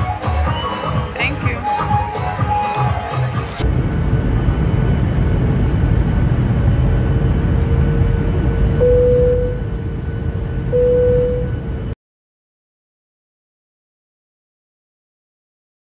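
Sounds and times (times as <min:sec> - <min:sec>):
steady low rumble: 0:03.6 - 0:12.0
humming tone: 0:06.4 - 0:12.0.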